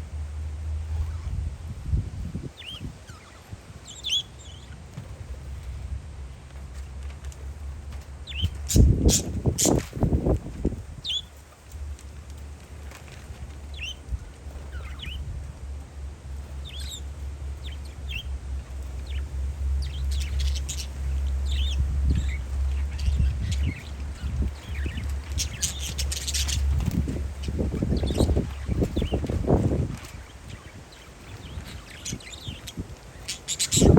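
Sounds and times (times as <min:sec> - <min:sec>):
wind on microphone: 0:00.9 - 0:04.1, 0:08.3 - 0:11.2, 0:18.9 - 0:33.9
parakeets chirping: 0:02.5 - 0:05.7, 0:08.2 - 0:10.3, 0:11.0 - 0:11.4, 0:12.9 - 0:15.3, 0:16.3 - 0:33.9.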